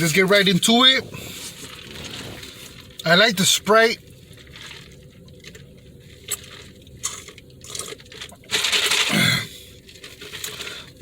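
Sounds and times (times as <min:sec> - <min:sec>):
slurp through a straw: 0:00.9 - 0:03.0.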